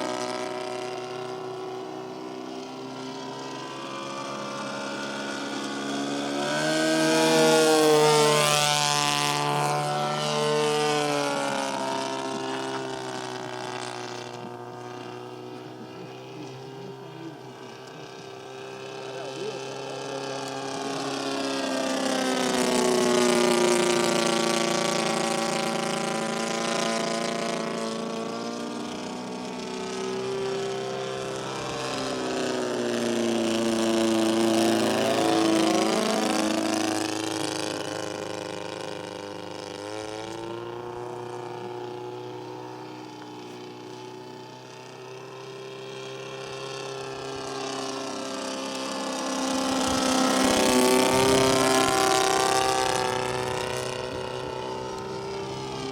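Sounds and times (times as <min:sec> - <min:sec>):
model plane engine in flight: 0:00.0 - 0:55.9.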